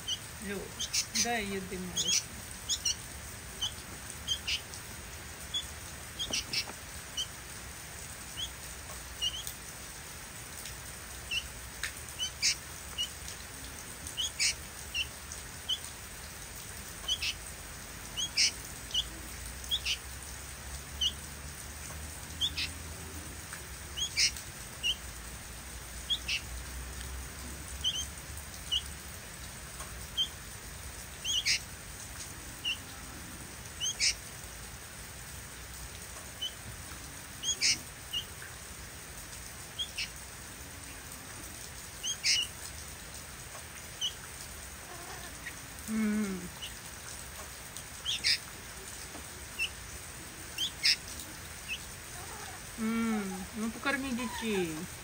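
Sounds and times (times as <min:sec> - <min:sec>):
fledgling birds chirping: 0:00.0 - 0:04.8, 0:05.4 - 0:07.5, 0:09.2 - 0:09.5, 0:14.1 - 0:15.9, 0:22.4 - 0:23.2, 0:23.9 - 0:25.0, 0:31.2 - 0:31.7, 0:33.8 - 0:34.2, 0:37.4 - 0:38.3, 0:42.0 - 0:42.5, 0:48.0 - 0:48.5, 0:49.4 - 0:54.9.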